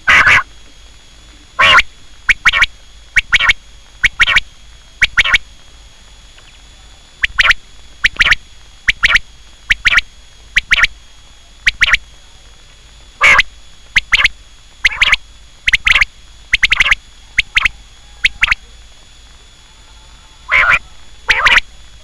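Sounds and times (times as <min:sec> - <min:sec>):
quail calling: 0:00.0 - 0:00.5, 0:01.6 - 0:04.4, 0:05.0 - 0:05.4, 0:07.2 - 0:10.9, 0:11.7 - 0:12.0, 0:13.2 - 0:18.6, 0:20.4 - 0:21.7.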